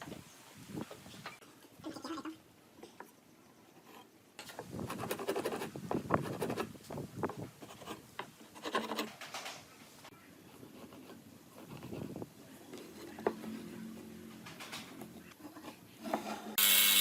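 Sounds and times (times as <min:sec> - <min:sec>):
scratching and rubbing on wood: 0:03.8 - 0:09.5, 0:10.4 - 0:16.6.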